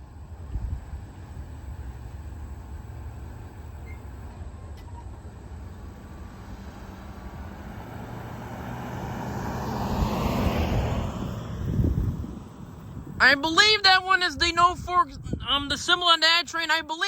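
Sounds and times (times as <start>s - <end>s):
freight train cars rolling on rails: 0.0s - 8.2s.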